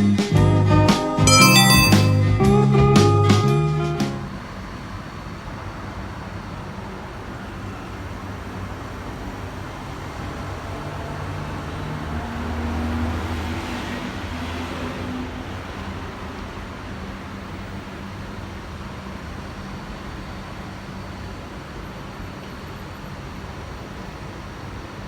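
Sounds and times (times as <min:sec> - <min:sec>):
road traffic noise: 0:04.5 - 0:19.2.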